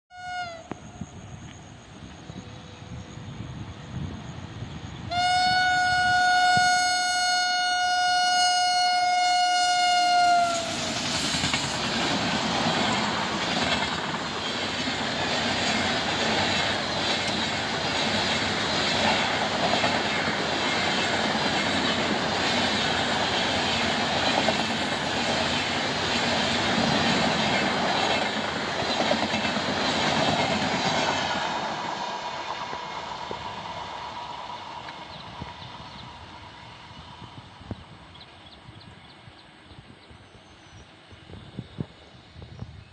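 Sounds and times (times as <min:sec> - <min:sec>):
locomotive horn blast: 0:00.1 - 0:00.8, 0:05.1 - 0:11.0
train wheels rumbling on rails: 0:00.6 - 0:42.9.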